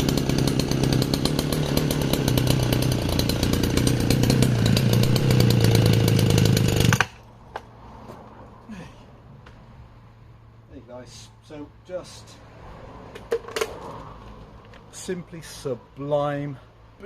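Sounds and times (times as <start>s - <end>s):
chainsaw cutting wood: 0.0s - 7.3s.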